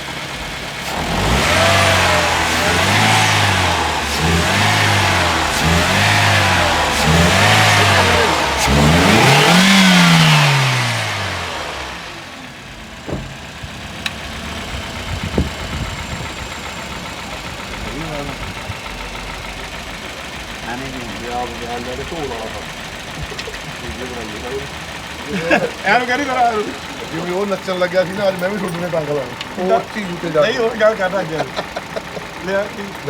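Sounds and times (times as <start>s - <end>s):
car engine revving: 0.0s - 33.0s
sharp taps over idle: 13.0s - 14.4s, 15.2s - 33.0s.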